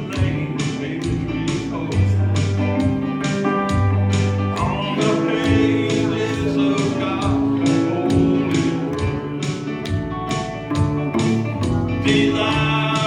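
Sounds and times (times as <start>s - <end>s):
acoustic guitar strumming: 0.0s - 13.0s
sustained bass and melody notes: 0.0s - 13.0s.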